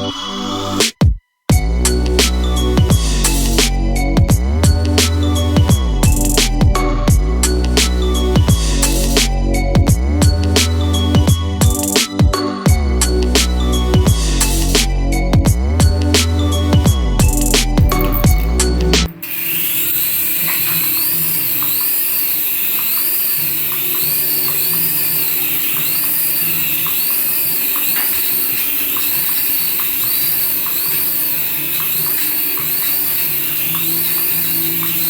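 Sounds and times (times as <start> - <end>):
toy warbling whine: 17.9 - 35.0.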